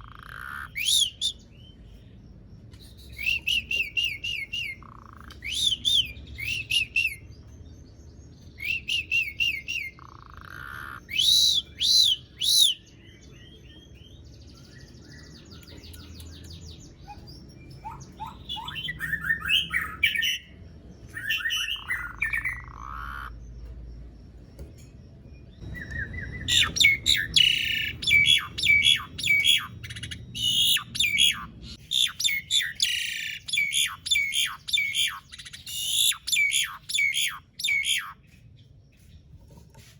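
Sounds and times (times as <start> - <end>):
starling whistling and chattering: 0.0 - 1.5, 2.7 - 7.2, 8.6 - 12.9, 16.9 - 20.5, 21.1 - 23.4, 25.6 - 38.3.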